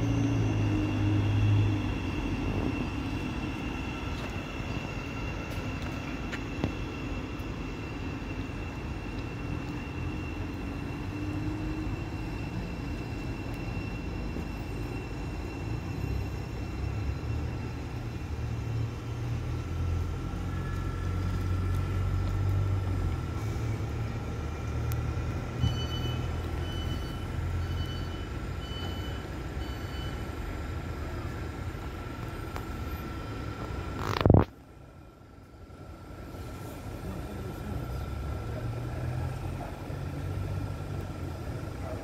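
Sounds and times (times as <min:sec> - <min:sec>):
low rumble of trains: 0:00.0 - 0:42.0
steady whine: 0:00.0 - 0:42.0
short high beeps: 0:25.6 - 0:30.3.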